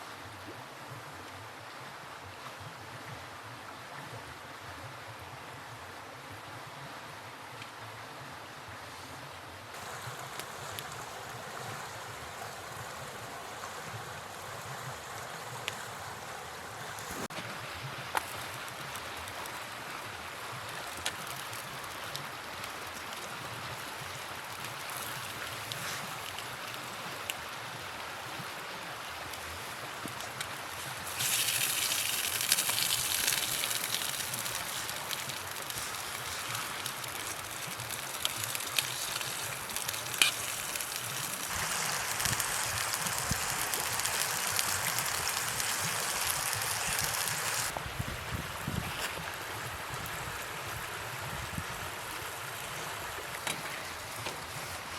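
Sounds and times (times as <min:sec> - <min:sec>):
river water flowing: 0:00.0 - 0:54.9
high-pitched hiss: 0:31.1 - 0:47.7.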